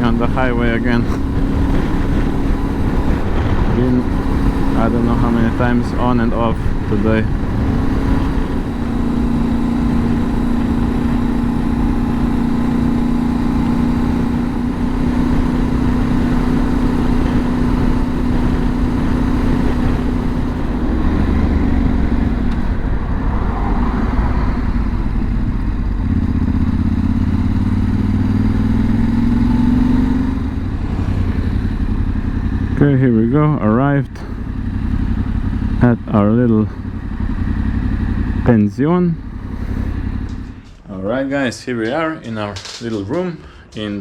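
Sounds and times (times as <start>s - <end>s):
wind rush: 0.0s - 13.2s, 14.0s - 32.3s
motorcycle engine cruising: 0.0s - 44.0s.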